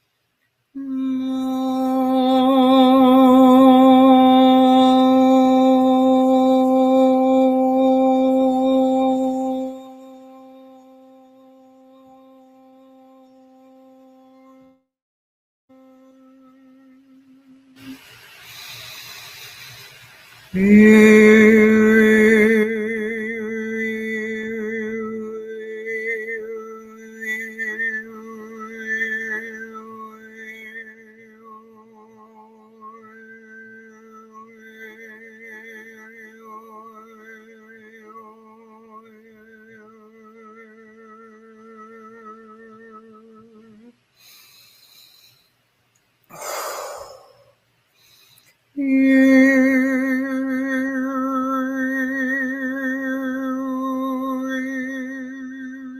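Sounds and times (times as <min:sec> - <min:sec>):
high wordless toning voice: 0:00.8 - 0:14.9, 0:46.3 - 0:47.6.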